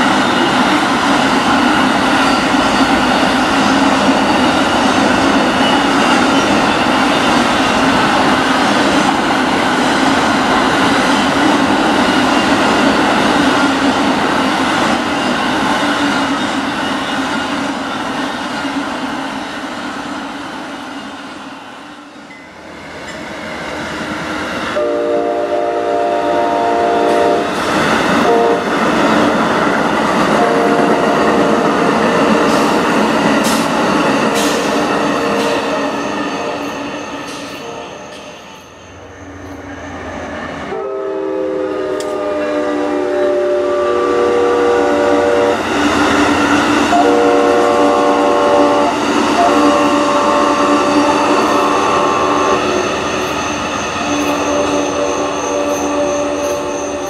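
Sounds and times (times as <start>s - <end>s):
passenger train rumbling past: 0.0s - 57.0s
locomotive horn blasts: 24.8s - 27.6s, 28.2s - 28.7s, 30.3s - 32.0s, 40.7s - 45.6s, 46.9s - 52.8s, 54.1s - 57.0s.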